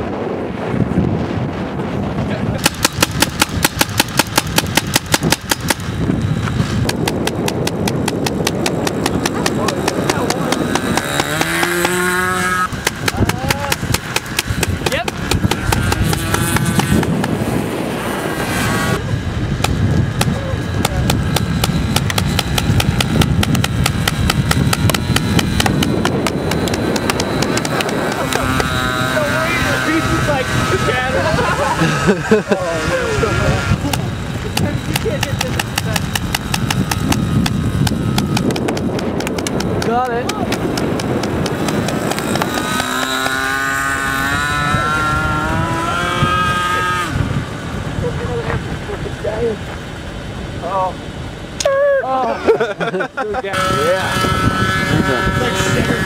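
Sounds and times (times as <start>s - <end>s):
model airplane engine whine: 0.0s - 56.0s
wind rumbling on microphone: 0.0s - 56.0s
paintball gun firing: 2.6s - 5.9s, 6.7s - 17.4s, 19.6s - 28.8s, 33.9s - 43.4s.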